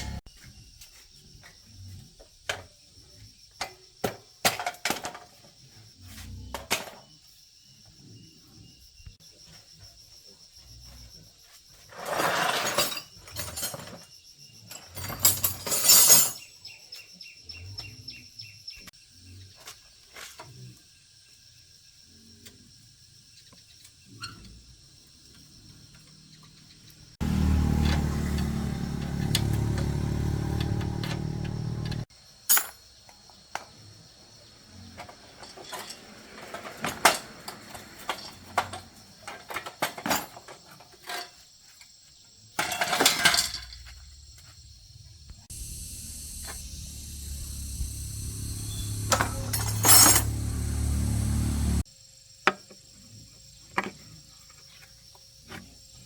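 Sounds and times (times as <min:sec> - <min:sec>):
metal tools clinking: 0:12.0 - 0:14.0, 0:14.7 - 0:16.5, 0:42.6 - 0:44.0, 0:48.7 - 0:50.9
motor-driven machine running: 0:45.4 - 0:51.8.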